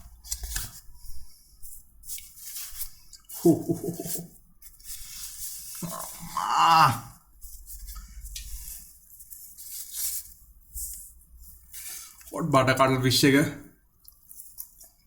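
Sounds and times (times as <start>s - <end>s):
person humming: 3.4s - 4.3s, 5.8s - 7.1s
food packaging rustling: 7.3s - 12.3s.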